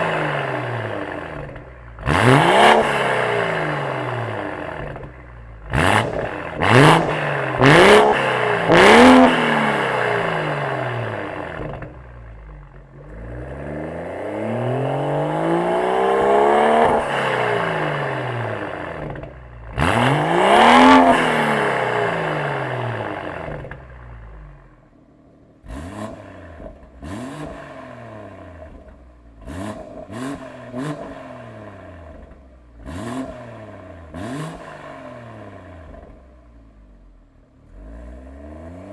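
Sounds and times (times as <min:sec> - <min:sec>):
car engine revving: 0:00.0 - 0:24.7, 0:25.4 - 0:38.9
exhaust cracks: 0:03.7 - 0:13.2.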